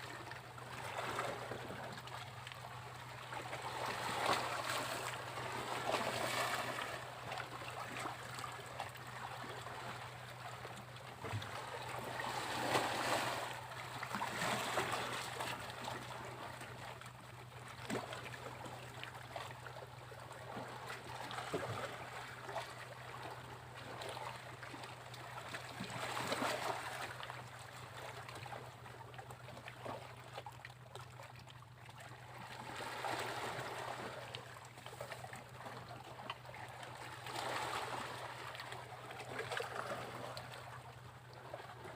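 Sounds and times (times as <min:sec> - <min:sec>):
sea waves breaking on beach: 0:12.1 - 0:13.6.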